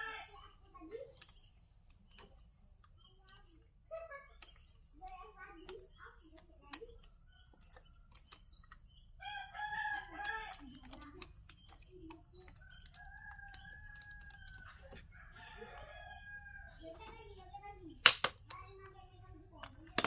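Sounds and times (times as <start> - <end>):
sharp clicks and taps: 1.1 - 15.1, 17.0 - 20.0
rooster crowing: 13.1 - 16.8.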